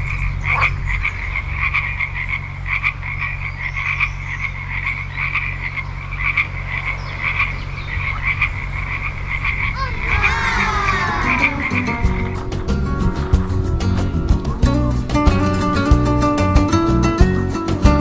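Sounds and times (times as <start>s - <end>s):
frogs croaking: 0.0s - 12.4s.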